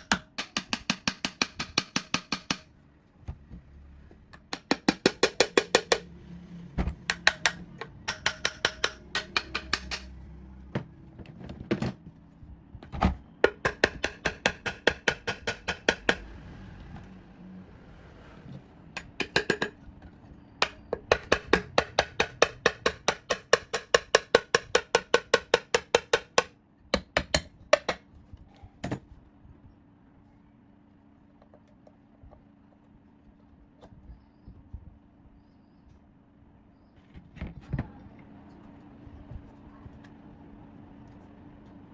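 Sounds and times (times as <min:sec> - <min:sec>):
hammer tapping on metal: 0:00.0 - 0:02.7, 0:07.0 - 0:10.2, 0:13.4 - 0:16.2, 0:19.0 - 0:19.8, 0:20.6 - 0:28.0.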